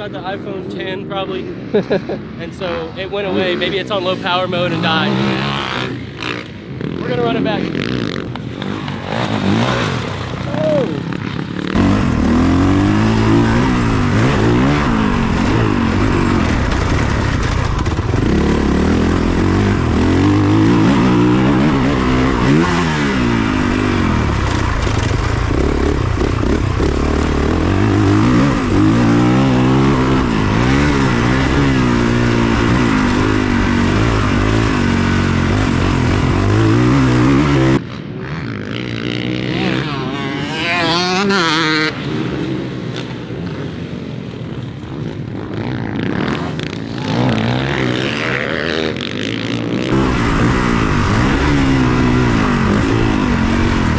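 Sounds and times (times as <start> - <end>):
dirt bike engine revving: 2.2 - 53.9.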